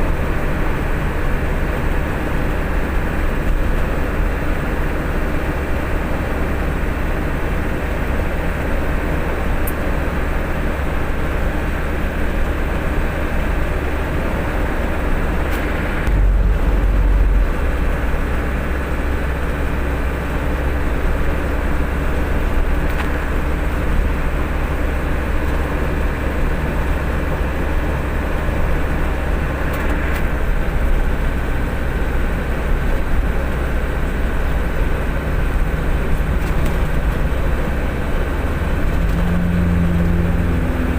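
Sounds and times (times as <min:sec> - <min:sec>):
road rumble: 0:00.0 - 0:40.9
truck engine running: 0:00.0 - 0:40.9.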